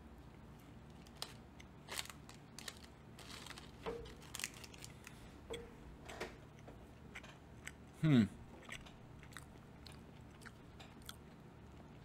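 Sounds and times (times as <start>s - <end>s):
granola bar being chewed: 0.8s - 5.2s, 8.6s - 12.0s.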